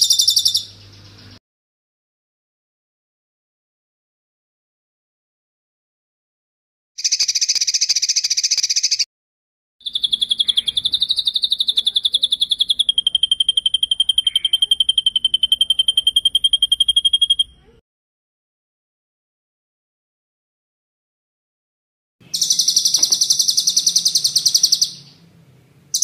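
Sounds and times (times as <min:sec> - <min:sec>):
songbird buzzy trill: 0:00.0 - 0:01.4, 0:07.0 - 0:09.0, 0:09.8 - 0:17.8, 0:22.2 - 0:26.0
songbird rapid rolling trill: 0:00.0 - 0:01.4, 0:07.0 - 0:09.0, 0:09.8 - 0:17.7, 0:22.2 - 0:26.0.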